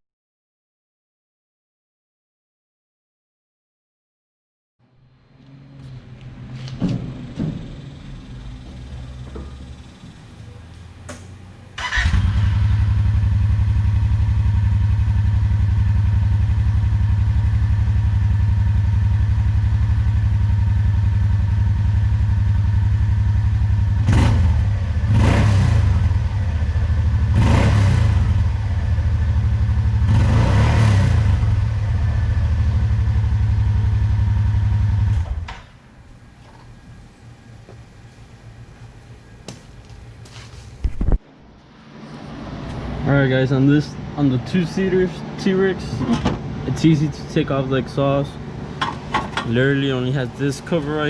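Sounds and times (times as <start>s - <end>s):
engine starting and idling: 11.2s - 13.4s
engine revving in short blips: 23.9s - 28.7s, 29.9s - 32.4s.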